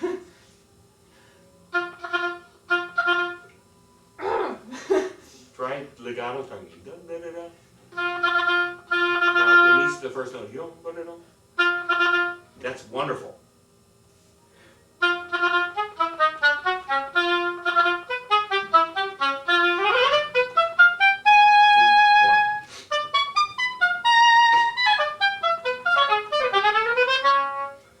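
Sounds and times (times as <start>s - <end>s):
oboe playing fast notes: 1.7s - 3.5s, 7.9s - 10.1s, 11.6s - 12.6s, 15.0s - 27.9s.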